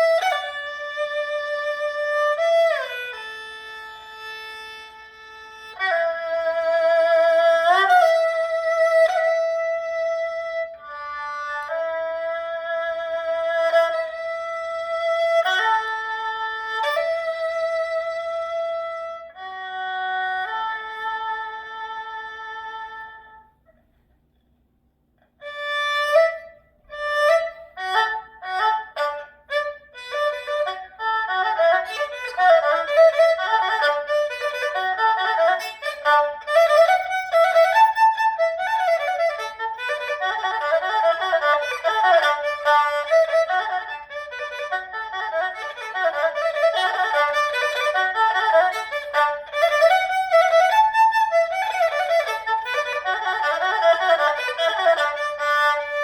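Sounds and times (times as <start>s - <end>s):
erhu playing: 0.0s - 23.7s, 25.4s - 56.0s.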